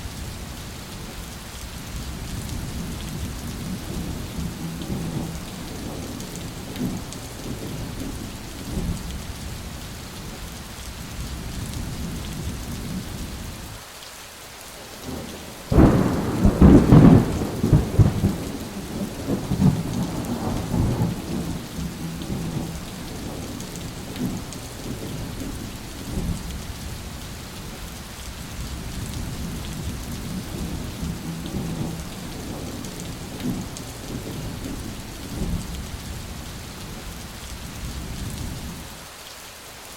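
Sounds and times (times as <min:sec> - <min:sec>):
heavy rain: 0:00.0 - 0:39.9
thunder rumbling: 0:02.1 - 0:09.6, 0:15.0 - 0:27.7, 0:28.6 - 0:38.8
sharp thunderclap: 0:15.2 - 0:26.4, 0:29.1 - 0:35.7.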